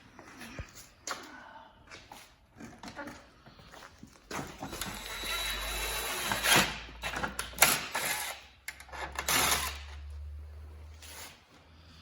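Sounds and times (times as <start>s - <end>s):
power drill driving a screw: 4.7s - 8.4s, 9.1s - 9.9s
tools clicking and knocking: 6.3s - 9.8s.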